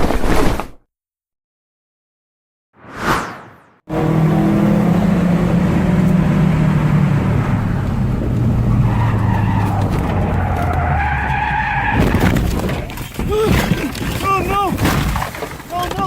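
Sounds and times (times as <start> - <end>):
car engine running loud: 3.9 - 10.8
tyre noise: 8.2 - 16.0
tyres squealing in skid: 8.6 - 12.4.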